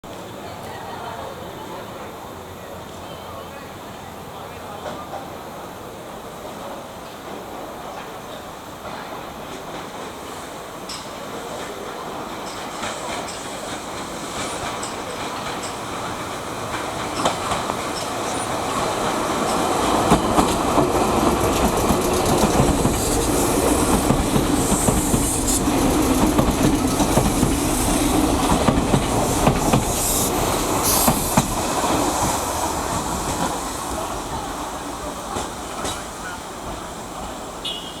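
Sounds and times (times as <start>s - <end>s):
train wheels clacking over rail joints: 8.8s - 37.9s.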